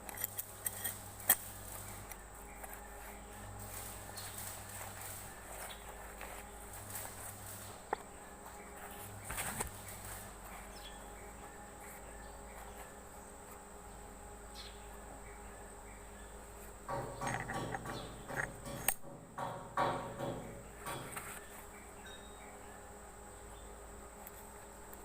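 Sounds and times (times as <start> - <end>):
high-pitched insect drone: 0.0 - 25.0
low steady hum: 0.0 - 25.0
clatter and knocks: 16.9 - 21.5.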